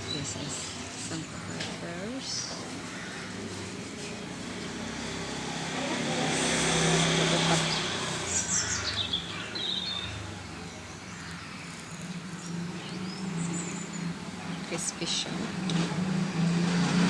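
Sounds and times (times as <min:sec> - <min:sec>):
motor vehicle passing: 0:00.0 - 0:17.0
bird chirping: 0:03.9 - 0:15.5.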